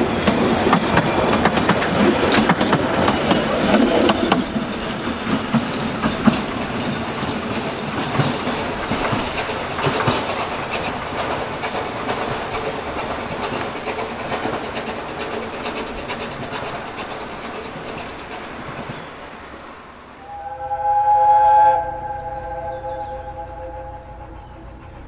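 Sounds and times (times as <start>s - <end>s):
wheels clicking over rail joints: 0.0s - 19.7s
steam train running: 0.0s - 25.0s.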